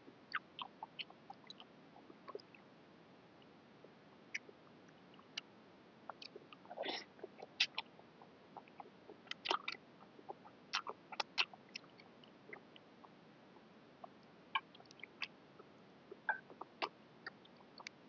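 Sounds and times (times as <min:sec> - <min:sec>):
chewing mouth smacks: 0:09.3 - 0:09.8, 0:10.7 - 0:11.9.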